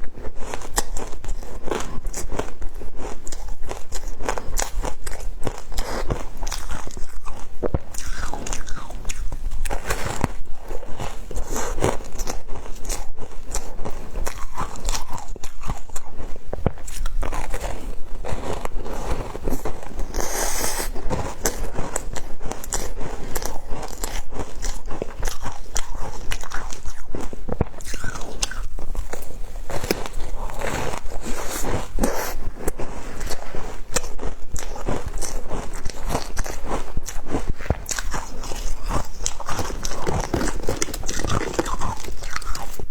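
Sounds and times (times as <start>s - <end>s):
person crunching ice: 6.4s - 10.3s, 27.7s - 37.2s, 37.8s - 42.7s.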